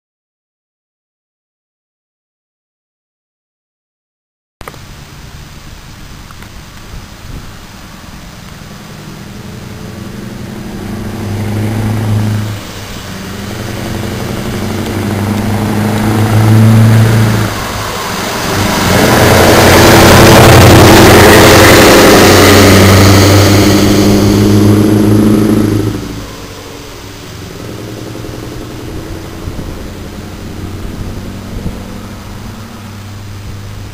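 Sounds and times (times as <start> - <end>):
truck engine pulling under load: 7.2 - 33.9.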